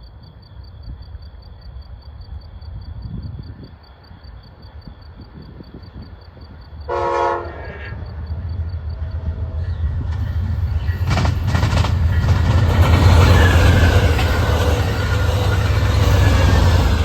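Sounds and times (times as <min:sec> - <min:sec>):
crickets chirping: 0:00.0 - 0:17.0
passenger train rumble: 0:04.6 - 0:17.0
train horn blast: 0:06.9 - 0:08.2
wheel clatter over rails: 0:09.9 - 0:17.0.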